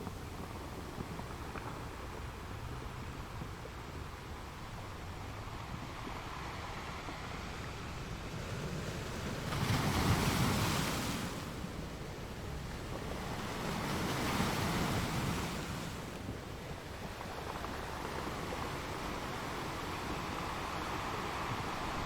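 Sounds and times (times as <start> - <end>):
ocean waves breaking on shore: 5.2 - 22.0.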